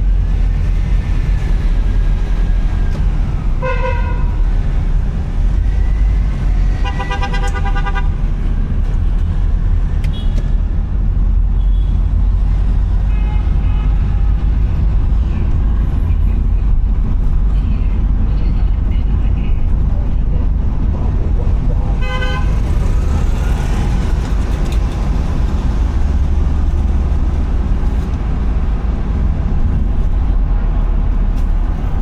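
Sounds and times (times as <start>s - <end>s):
car driving low rumble: 0.0s - 32.0s
vehicle horn toots: 3.6s - 4.3s, 6.8s - 8.2s, 10.1s - 10.5s, 22.0s - 22.6s.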